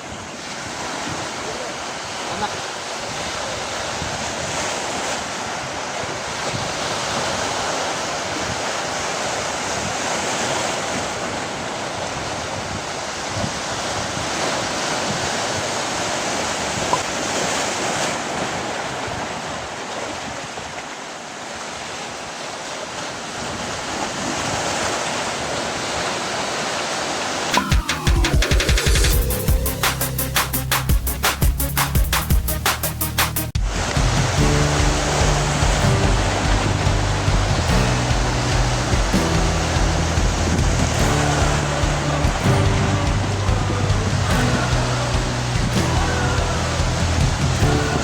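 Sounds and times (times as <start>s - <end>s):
sea waves washing ashore: 0.0s - 48.0s.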